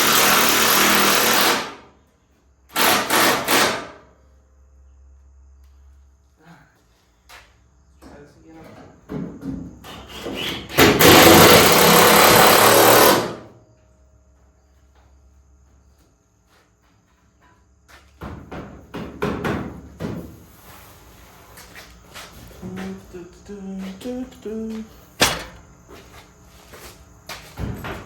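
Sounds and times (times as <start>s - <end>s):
power tool running: 0.0s - 1.9s, 2.7s - 3.9s, 10.7s - 13.5s
metallic knocks and clunks: 25.2s - 25.7s.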